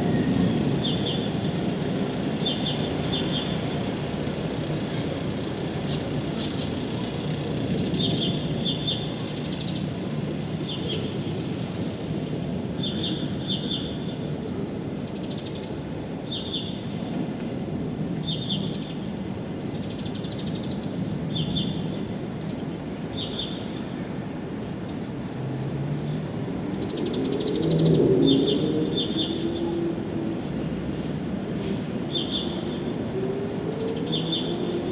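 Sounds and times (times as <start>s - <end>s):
small birds chirping: 4.9s - 14.3s, 30.4s - 34.9s.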